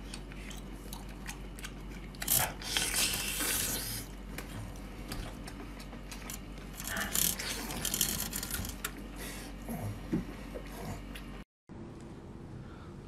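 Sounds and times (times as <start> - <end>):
wet chewing and tearing: 0.0 - 6.3.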